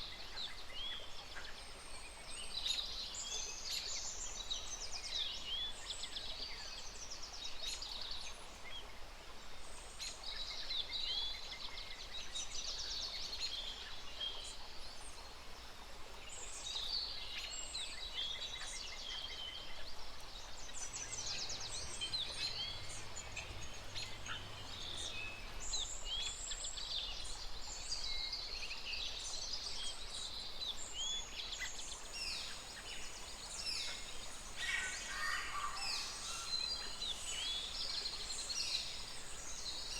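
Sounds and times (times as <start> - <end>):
faint background hiss: 0.0 - 39.9
birds chirping: 20.4 - 26.7, 31.7 - 39.9.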